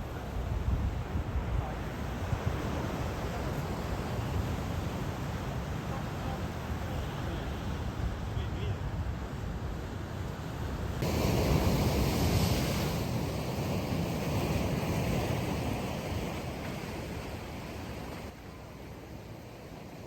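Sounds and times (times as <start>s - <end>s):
sea waves breaking on beach: 9.5s - 20.0s.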